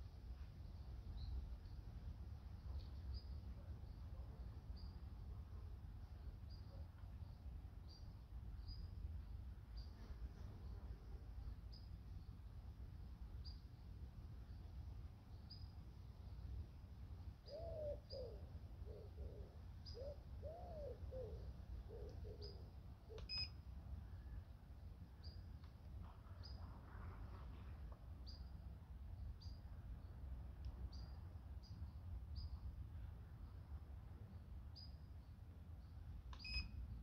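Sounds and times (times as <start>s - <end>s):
small bird chirping: 6.2s - 10.0s, 15.3s - 15.8s, 17.4s - 23.6s, 30.9s - 32.7s, 34.7s - 37.0s.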